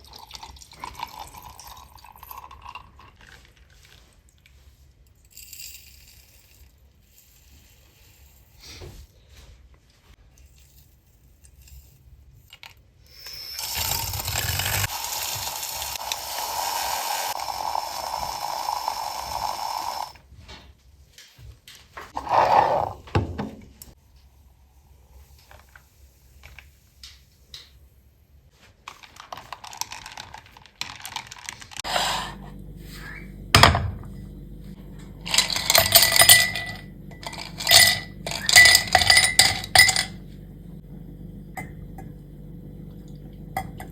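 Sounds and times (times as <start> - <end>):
small machine humming: 13.2 - 20.2, 31.8 - 43.9
glass and metal utensils clinking: 35.3 - 40.2.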